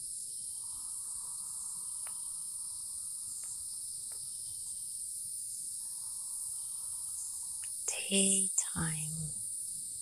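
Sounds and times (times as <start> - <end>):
insects trilling: 0.0 - 10.0
low insect buzz: 0.0 - 10.0
faint clicks: 2.0 - 2.4.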